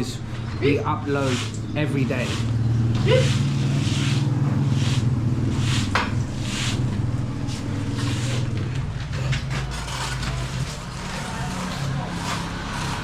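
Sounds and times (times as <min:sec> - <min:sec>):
low engine hum: 0:00.0 - 0:09.7
short swishing or scraping noises: 0:03.1 - 0:06.9.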